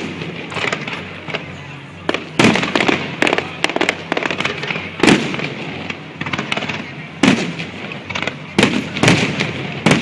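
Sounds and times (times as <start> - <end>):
fireworks bangs: 0.0 - 10.0
sharp firework cracks: 0.0 - 10.0
loud firework boom: 2.0 - 10.0.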